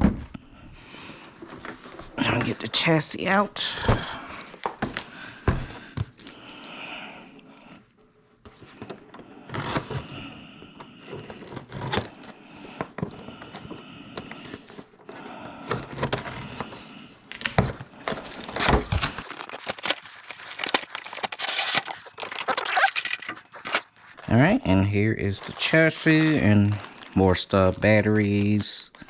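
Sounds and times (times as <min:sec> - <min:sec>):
plastic crinkling: 0:19.2 - 0:24.2.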